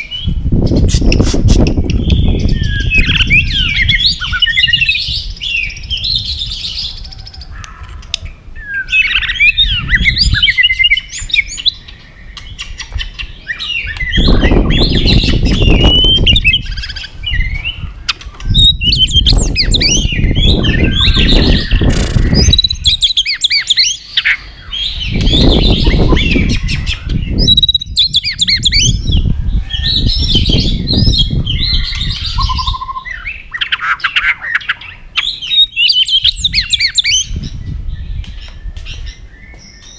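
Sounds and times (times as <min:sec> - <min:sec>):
bird singing whistles and chirps: 0:00.0 - 0:07.6, 0:08.3 - 0:39.9
loud low noise: 0:19.0 - 0:23.0.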